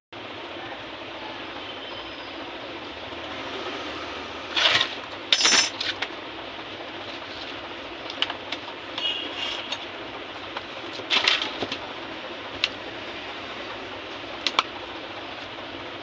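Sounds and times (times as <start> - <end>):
small parts clicking and clinking: 4.6 - 6.1.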